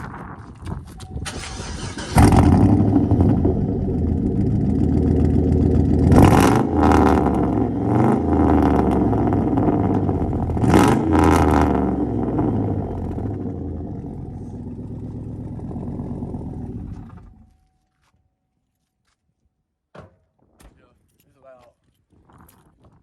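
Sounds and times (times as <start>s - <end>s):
truck engine starting and revving: 1.1s - 17.6s.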